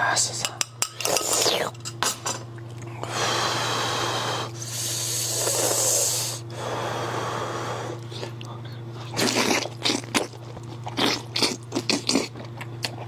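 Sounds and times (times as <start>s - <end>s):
sharp eating clicks: 8.0s - 13.0s.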